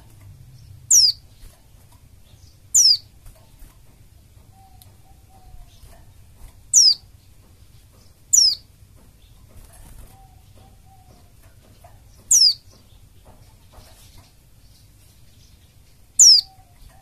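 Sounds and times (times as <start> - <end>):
high falling bird calls: 0.0 - 17.0.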